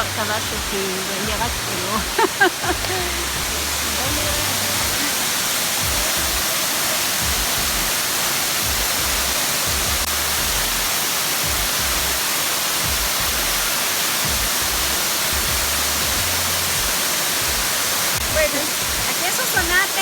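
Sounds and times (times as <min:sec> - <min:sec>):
low rumbles: 0:00.0 - 0:06.4
waterfall rushing: 0:00.0 - 0:20.0.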